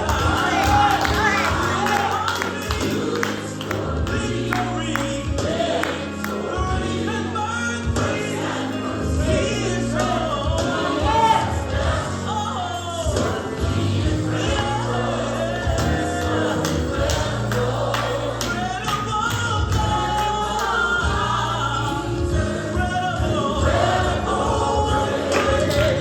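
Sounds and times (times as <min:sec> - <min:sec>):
choir singing: 0:00.0 - 0:26.0
man singing: 0:00.0 - 0:26.0
bass and drums: 0:13.0 - 0:26.0.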